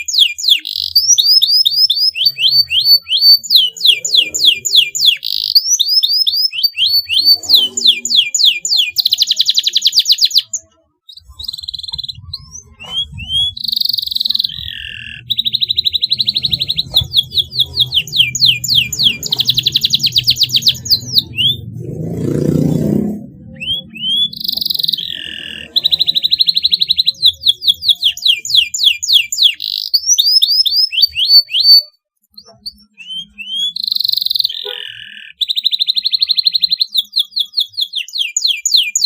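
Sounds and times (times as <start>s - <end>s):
canary singing: 0.0s - 39.0s
low rumble: 15.5s - 24.4s.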